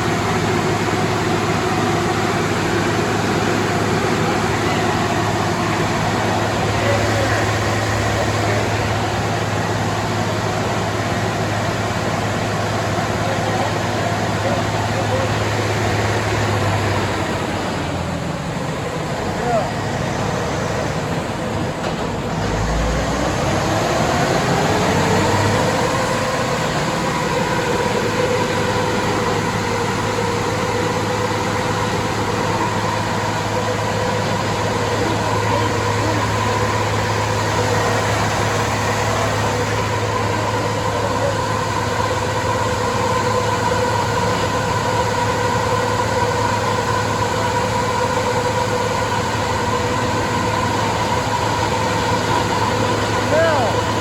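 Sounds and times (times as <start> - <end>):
diesel engine droning under load: 0.0 - 54.0.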